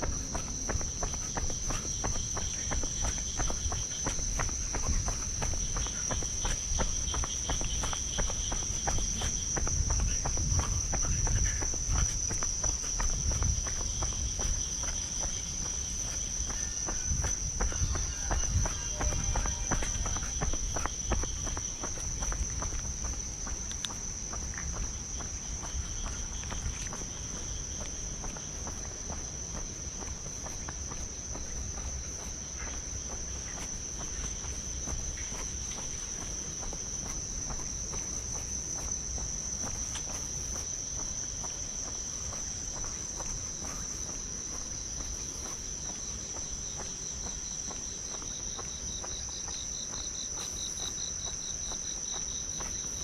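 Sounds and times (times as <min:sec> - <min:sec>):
insects chirring: 0:00.0 - 0:53.0
pulsing insect chirp: 0:00.0 - 0:53.0.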